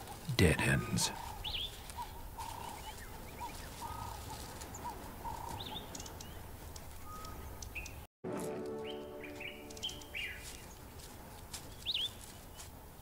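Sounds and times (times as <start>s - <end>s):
birds calling: 0.0s - 8.1s, 8.8s - 12.8s
higher bird chirps: 8.8s - 10.8s.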